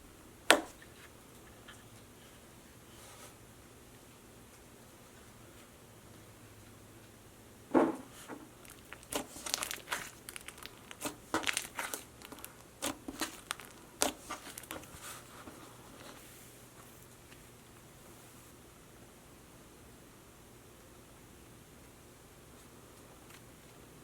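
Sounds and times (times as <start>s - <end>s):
crackling and crinkling: 8.0s - 17.9s, 21.8s - 24.0s.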